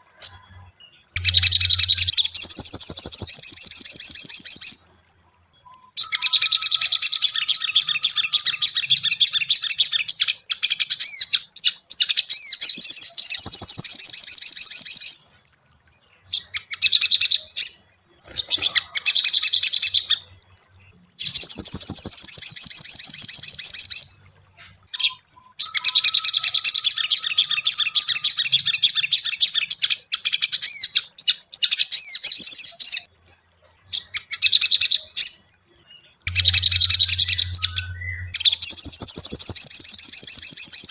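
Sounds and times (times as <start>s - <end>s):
bird high chattering song: 0.0s - 15.4s, 16.0s - 40.9s.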